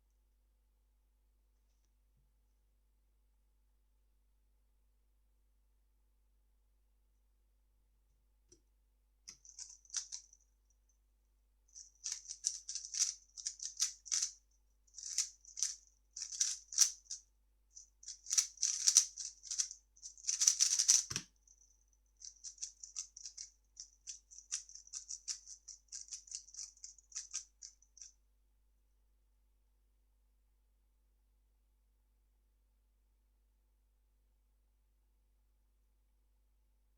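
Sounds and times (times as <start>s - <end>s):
puzzle cube plastic clicking: 18.2s - 21.2s.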